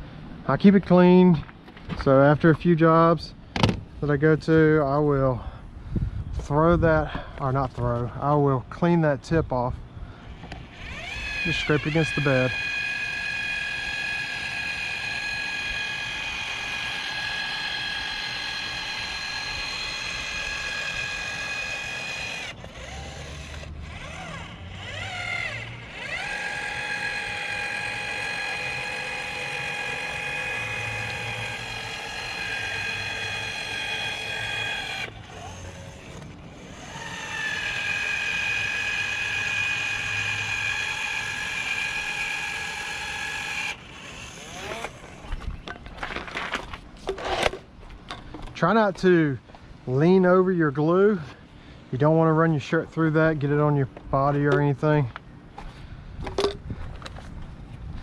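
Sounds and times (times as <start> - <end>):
electric caulking gun motor whining: 10.2 - 47.6.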